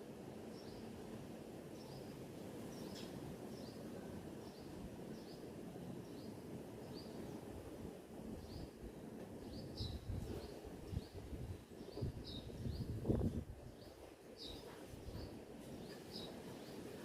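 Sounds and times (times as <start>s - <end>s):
bird chirping: 2.7s - 7.4s, 9.4s - 11.2s, 11.8s - 17.0s.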